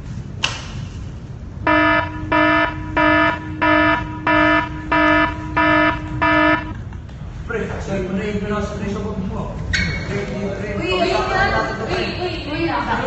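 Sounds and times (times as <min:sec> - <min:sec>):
electronic alarm beeping: 0:01.6 - 0:06.9.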